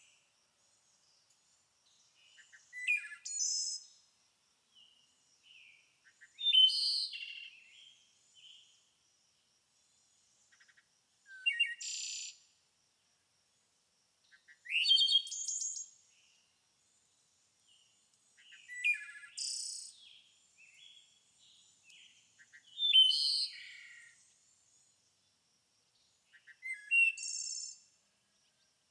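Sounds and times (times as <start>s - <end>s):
songbirds chirping and trilling: 0.6s - 4.1s, 14.3s - 25.1s.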